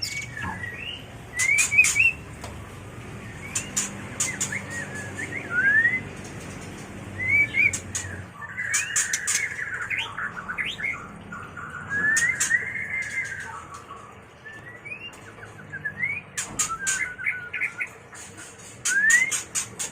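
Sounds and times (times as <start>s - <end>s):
bird whistling call: 0.0s - 2.2s, 3.4s - 6.1s, 7.2s - 10.9s, 11.7s - 18.0s, 18.8s - 19.7s.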